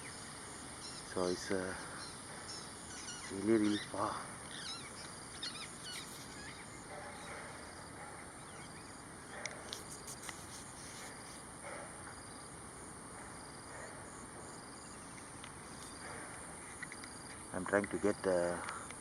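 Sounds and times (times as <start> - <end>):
bird calls: 0.0 - 12.4
high-pitched insect chorus: 0.0 - 19.0.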